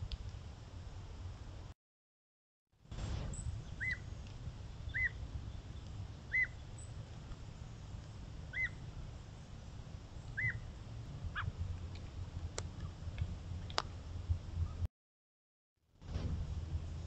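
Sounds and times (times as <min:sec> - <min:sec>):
low rumble: 0:02.9 - 0:14.9, 0:16.0 - 0:17.0
bird calling: 0:03.3 - 0:04.2, 0:04.8 - 0:07.9, 0:08.5 - 0:08.9, 0:10.2 - 0:11.6.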